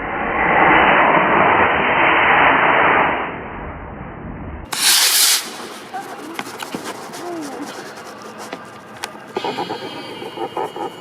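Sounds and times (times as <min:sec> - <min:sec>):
rocket motor hissing: 0:04.7 - 0:06.0.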